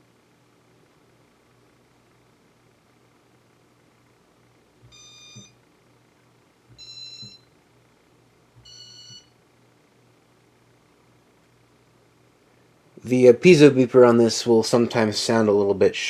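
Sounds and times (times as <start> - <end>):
low steady hum: 0.0 - 16.0
shrill piezo beeps: 4.9 - 5.6, 6.8 - 7.5, 8.6 - 9.3.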